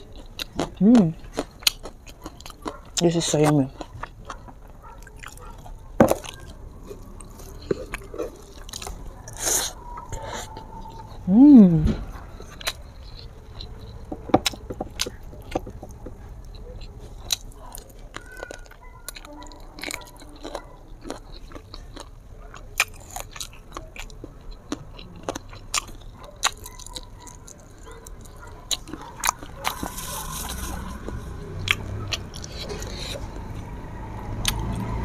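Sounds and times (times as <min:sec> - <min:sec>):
chewing and lip smacks: 0:00.0 - 0:11.3, 0:12.0 - 0:35.0.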